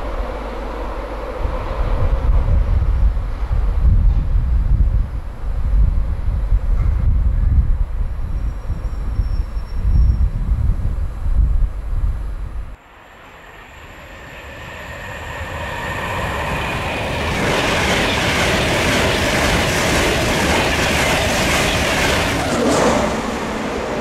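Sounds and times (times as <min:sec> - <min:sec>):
train passing at speed: 0:00.0 - 0:10.1, 0:12.7 - 0:24.0.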